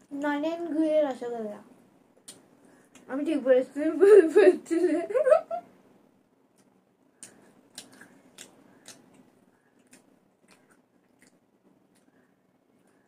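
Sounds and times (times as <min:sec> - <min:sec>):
wet chewing clicks and smacks: 0:06.5 - 0:12.2.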